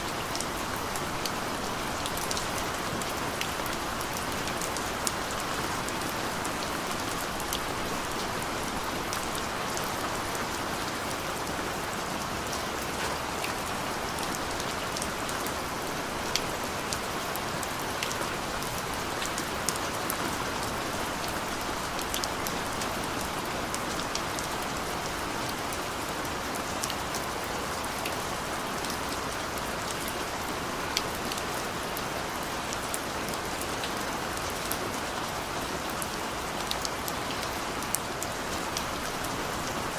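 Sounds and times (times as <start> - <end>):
rain on a hard surface: 0.0 - 39.9.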